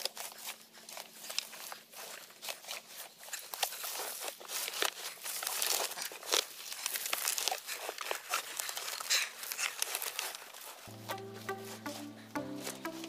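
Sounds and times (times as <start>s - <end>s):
dry leaves crackling and rustling: 0.0s - 13.0s.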